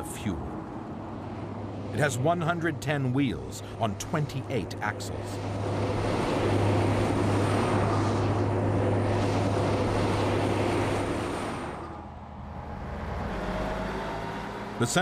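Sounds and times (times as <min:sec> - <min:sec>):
tyres running on road: 0:12.9 - 0:15.0.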